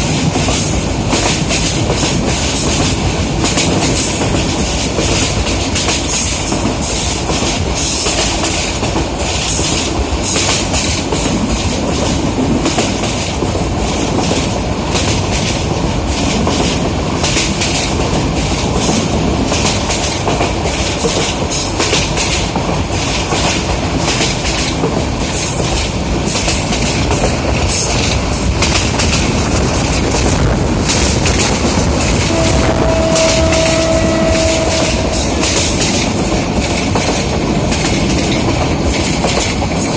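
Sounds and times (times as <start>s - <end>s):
train wheels clattering: 0.0s - 39.9s
steady pitched tone: 32.3s - 35.5s.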